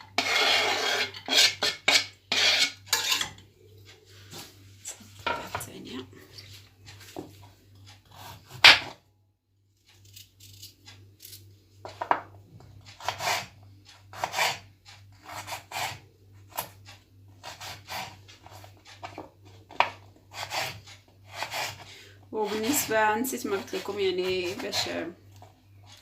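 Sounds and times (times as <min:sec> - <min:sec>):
carrot being scraped: 0:00.0 - 0:03.3, 0:13.0 - 0:13.5, 0:14.1 - 0:16.6, 0:17.4 - 0:19.2, 0:20.3 - 0:26.0.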